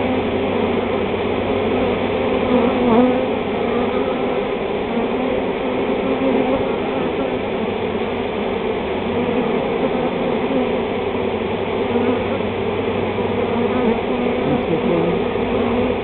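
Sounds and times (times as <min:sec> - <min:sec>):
bee swarm buzzing: 0:00.0 - 0:16.0.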